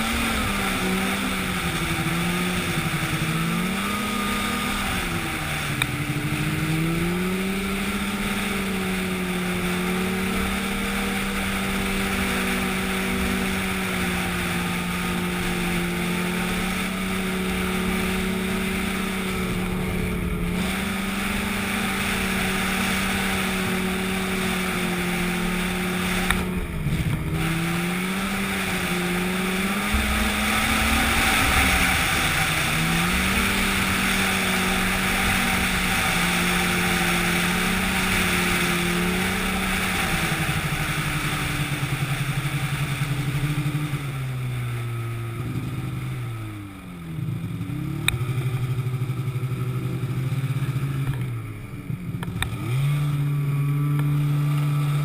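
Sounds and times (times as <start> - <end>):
rushing noise: 0.0 - 44.5
engine running: 0.0 - 55.0.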